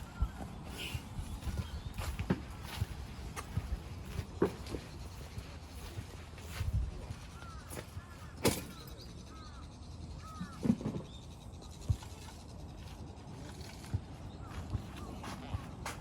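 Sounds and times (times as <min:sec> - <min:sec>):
bird calling: 0:00.0 - 0:12.4.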